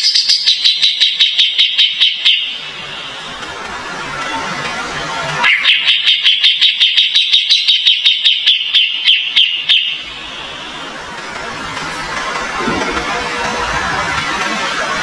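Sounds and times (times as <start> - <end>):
bird singing sharp high notes: 5.4 - 10.7.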